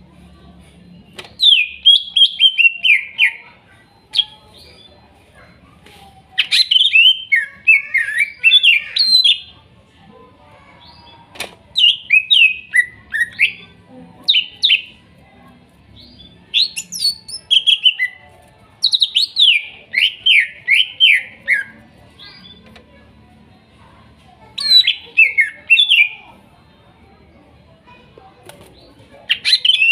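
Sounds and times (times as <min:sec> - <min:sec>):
bird singing chirps and whistles: 0:01.4 - 0:03.4, 0:24.6 - 0:26.2, 0:29.3 - 0:29.9.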